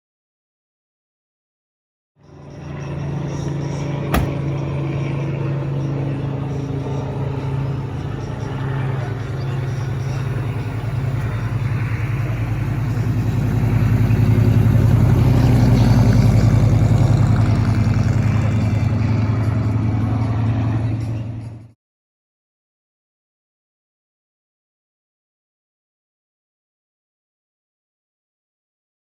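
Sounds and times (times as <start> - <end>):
car engine running: 3.3 - 5.2.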